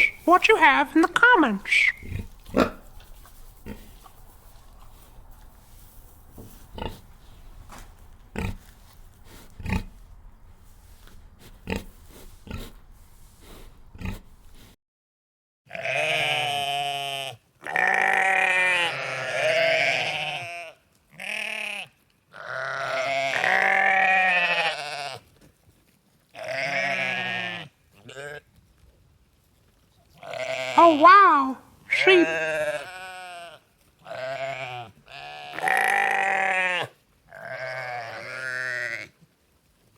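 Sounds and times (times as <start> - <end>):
pig grunts: 1.9 - 3.0, 3.6 - 4.1, 6.7 - 7.1, 8.3 - 10.0, 11.4 - 12.8, 13.4 - 14.8
sheep bleating: 15.7 - 25.2, 26.4 - 28.4, 30.2 - 39.2.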